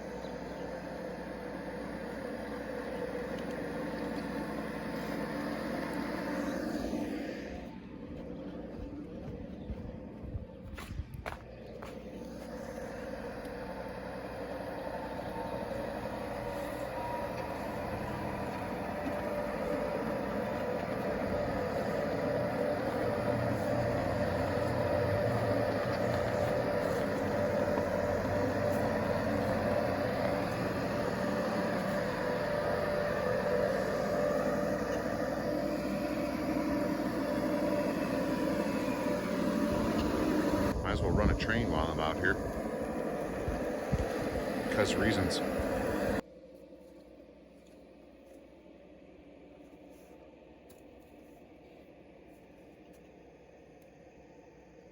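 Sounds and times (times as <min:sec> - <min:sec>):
model train motor whining: 0:12.1 - 0:46.2.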